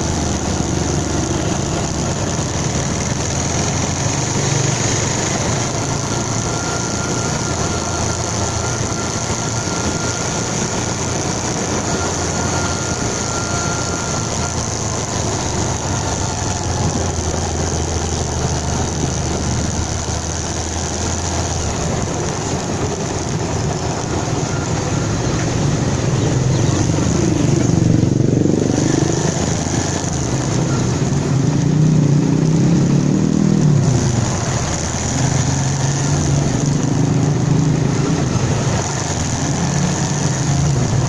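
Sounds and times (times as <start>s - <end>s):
motorcycle engine drone: 0.0s - 41.0s
thin high whine: 0.0s - 41.0s.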